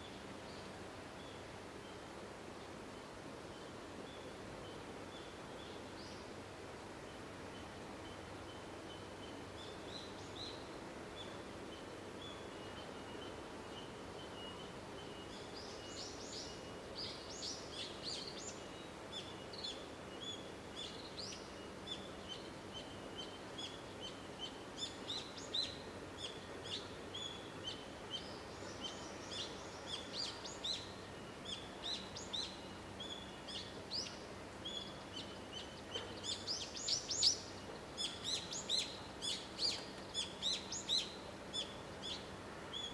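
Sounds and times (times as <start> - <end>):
faint outdoor background: 0.0 - 42.9
small birds chirping: 12.2 - 42.9.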